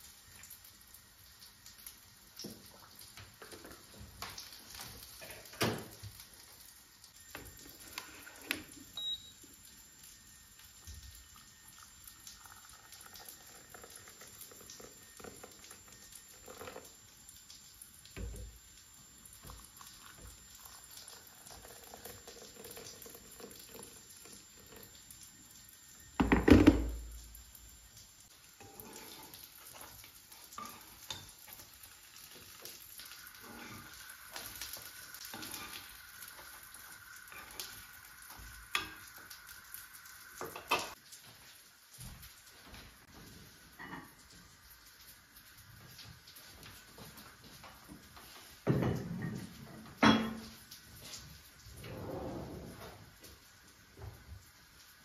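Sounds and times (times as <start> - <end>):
crockery and utensils clinking: 40.5 - 41.0, 49.2 - 50.5.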